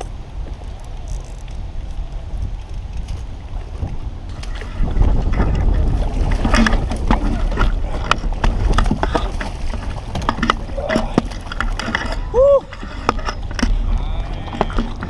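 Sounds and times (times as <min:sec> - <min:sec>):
water splashing around kayak: 0:00.0 - 0:15.0
wind on microphone: 0:00.0 - 0:15.0.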